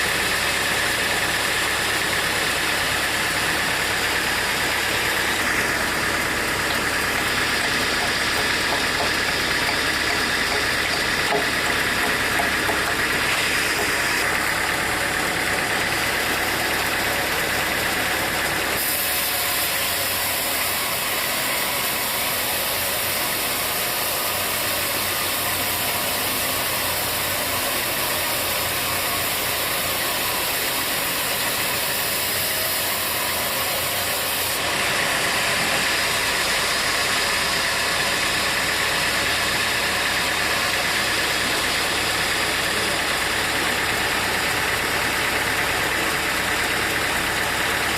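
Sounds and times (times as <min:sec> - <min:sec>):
sawmill machinery running: 0:00.0 - 0:47.9.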